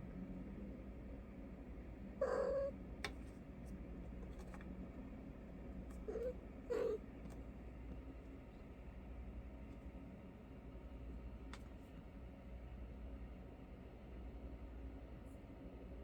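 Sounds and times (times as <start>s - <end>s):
cat meowing: 2.2s - 2.7s.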